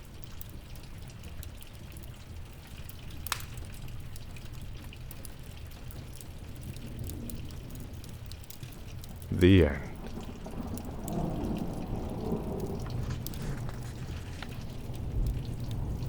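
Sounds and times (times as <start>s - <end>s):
steady rain: 0.0s - 16.0s
wood fire crackling: 12.5s - 16.0s.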